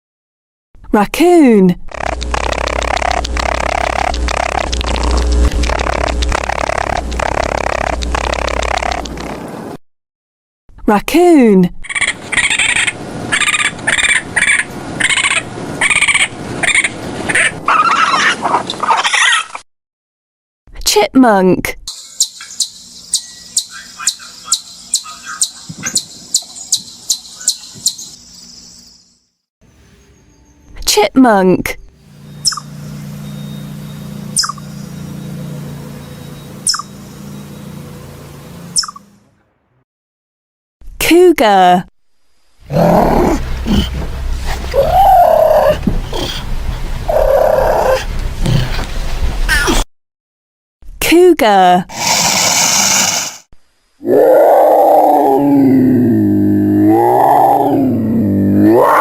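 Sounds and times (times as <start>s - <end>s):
steady low hum: 1.8s - 9.3s, 29.7s - 39.4s, 42.1s - 49.4s
raccoon chittering: 1.9s - 9.4s, 11.8s - 19.4s, 22.0s - 28.1s, 32.3s - 33.0s, 34.3s - 35.0s, 36.6s - 37.1s, 38.8s - 39.0s, 44.5s - 46.5s, 47.1s - 48.0s
chipmunk chirping: 2.0s - 5.1s, 5.7s - 9.1s, 11.9s - 17.5s, 22.0s - 28.5s, 32.3s - 35.4s, 36.0s - 37.6s, 38.7s - 39.0s.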